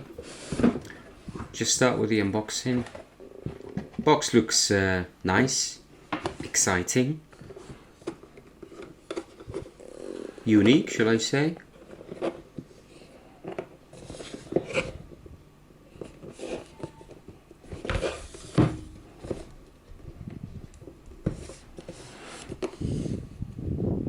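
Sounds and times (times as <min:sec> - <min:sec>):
box being handled and opened: 0:07.4 - 0:15.3, 0:15.9 - 0:23.2.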